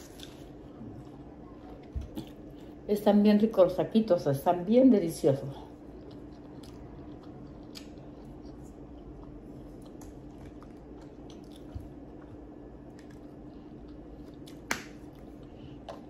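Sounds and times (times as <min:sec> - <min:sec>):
person chewing: 0:00.0 - 0:01.2, 0:05.7 - 0:16.0
steady low hum: 0:00.0 - 0:16.0.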